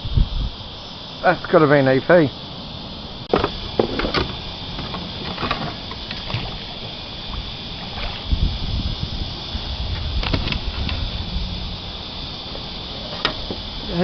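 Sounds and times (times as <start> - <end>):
cicada drone: 0.0 - 14.0
knocks and thumps on kayak: 3.3 - 6.7, 10.2 - 11.0.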